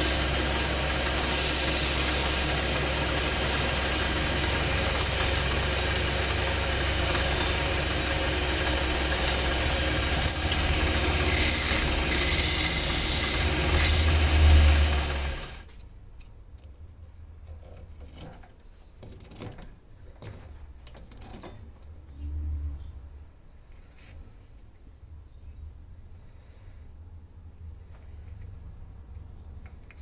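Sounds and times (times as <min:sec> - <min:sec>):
power tool motor humming: 0:00.0 - 0:15.6.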